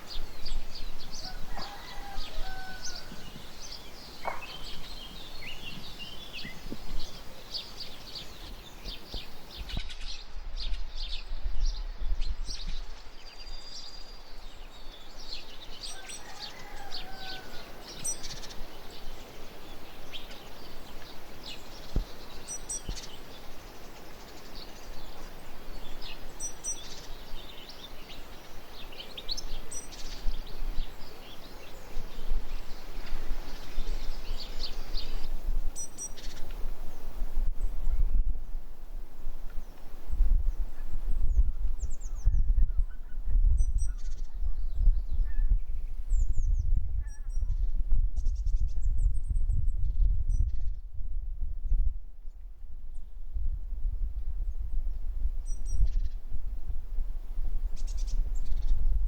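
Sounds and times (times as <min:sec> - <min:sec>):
birds chirping: 0:00.0 - 0:10.2
outdoor background hiss: 0:00.0 - 0:42.2.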